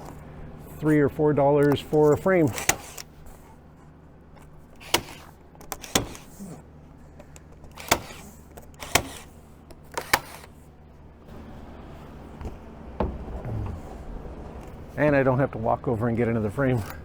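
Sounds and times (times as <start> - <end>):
staple gun clacks: 2.5 - 3.1, 7.7 - 10.5.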